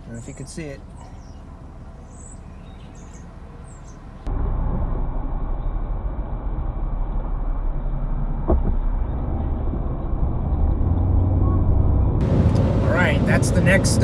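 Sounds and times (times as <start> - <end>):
road and engine rumble in vehicle: 0.0 - 14.0.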